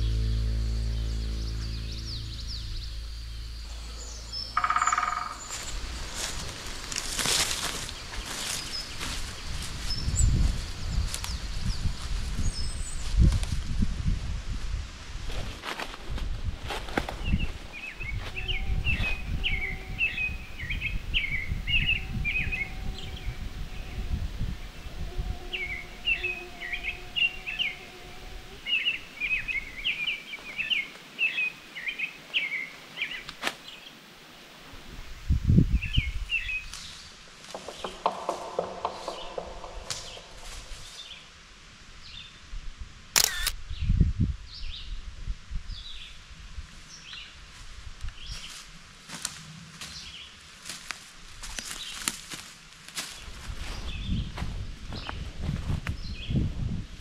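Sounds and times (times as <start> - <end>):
low rumble: 0.0 - 6.6, 38.0 - 40.9.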